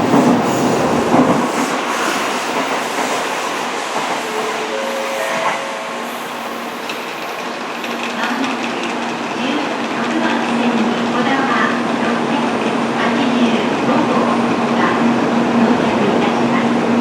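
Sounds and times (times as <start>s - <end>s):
high-speed train running on rails: 0.0s - 17.0s.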